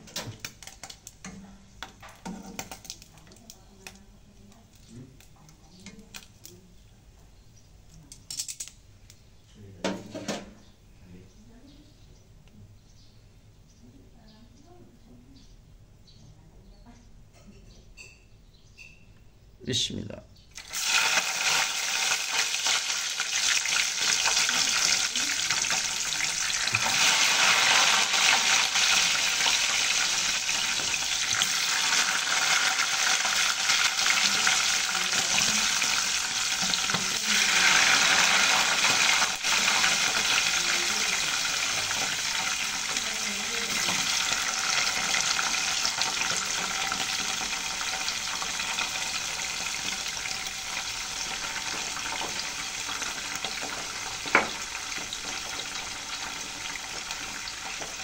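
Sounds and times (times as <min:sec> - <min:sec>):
food sizzling in hot oil: 0:20.5 - 0:58.0.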